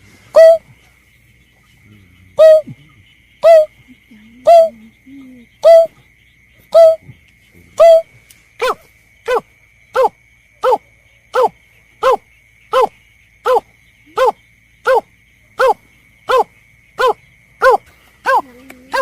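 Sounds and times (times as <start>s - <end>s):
bird hooting call: 0.3s - 0.8s, 2.3s - 6.0s, 6.7s - 7.1s, 7.8s - 9.4s, 11.4s - 19.0s.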